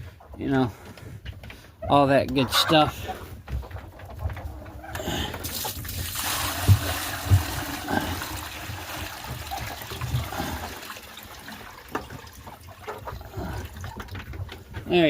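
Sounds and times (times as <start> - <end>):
water pouring and trickling: 5.0 - 14.8.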